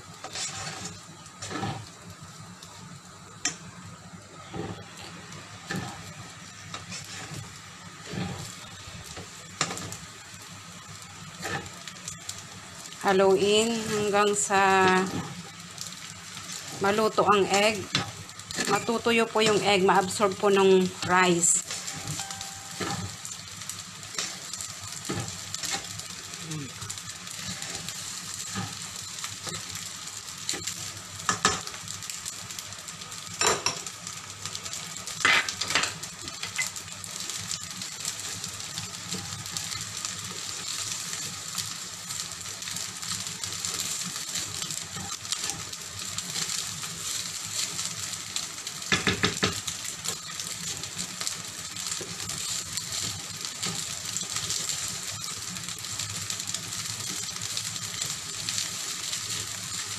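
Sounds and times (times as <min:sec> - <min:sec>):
rice sizzling in frying pan: 0:00.0 - 0:59.9
spatula knocking on pan: 0:48.9 - 0:49.6.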